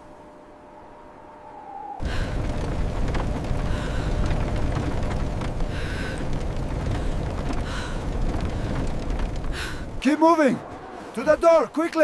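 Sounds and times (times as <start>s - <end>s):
blizzard wind rushing: 0.0s - 12.0s.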